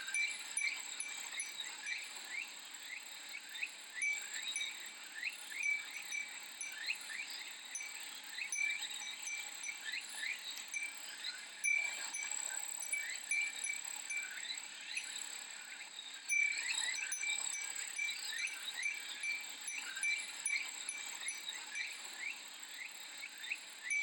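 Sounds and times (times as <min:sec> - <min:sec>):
wind chime tinkling: 0:00.0 - 0:02.4, 0:03.9 - 0:15.4, 0:16.2 - 0:22.4, 0:23.8 - 0:24.0
cicadas buzzing: 0:00.1 - 0:02.4, 0:03.9 - 0:15.2.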